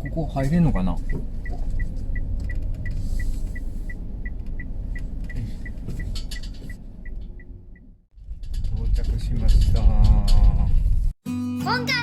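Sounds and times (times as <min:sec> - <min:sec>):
turn signal ticking: 0:00.0 - 0:08.1
car engine and road rumble: 0:00.0 - 0:11.2.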